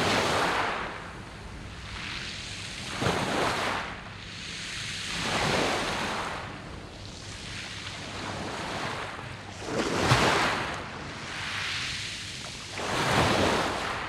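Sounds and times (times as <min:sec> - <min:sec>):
waves washing over pebbles: 0:08.0 - 0:10.9.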